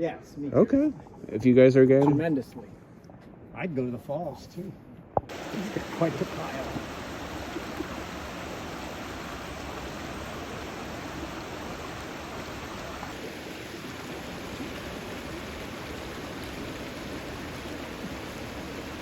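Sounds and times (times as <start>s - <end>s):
stream rushing: 5.3s - 19.0s.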